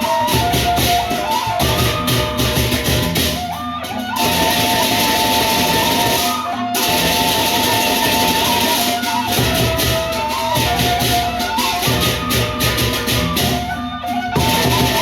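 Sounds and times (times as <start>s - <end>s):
cymbals clashing: 0.0s - 15.0s
large drums: 0.0s - 15.0s.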